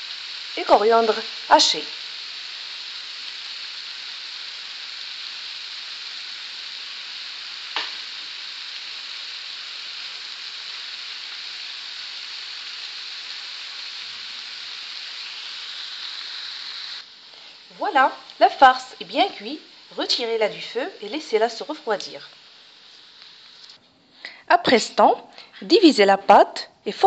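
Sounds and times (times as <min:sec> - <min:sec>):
filling sizzling in frying pan: 0:00.0 - 0:23.8
sharp click: 0:07.8 - 0:08.0.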